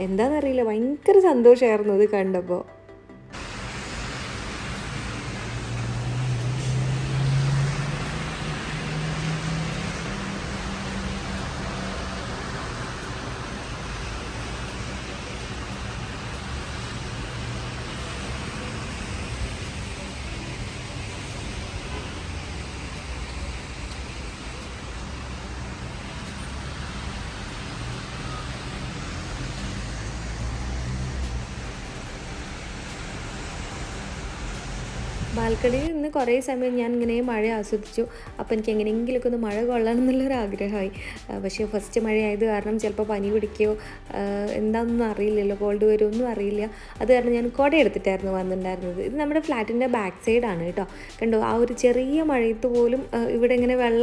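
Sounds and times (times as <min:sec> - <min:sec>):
steady street hiss: 0:03.3 - 0:54.0
car passing: 0:03.4 - 0:35.9.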